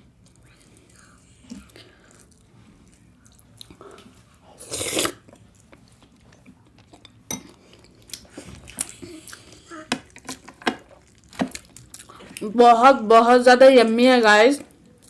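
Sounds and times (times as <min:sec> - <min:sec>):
person chewing food: 0:00.1 - 0:12.5
loud bite or slurp: 0:04.6 - 0:05.2.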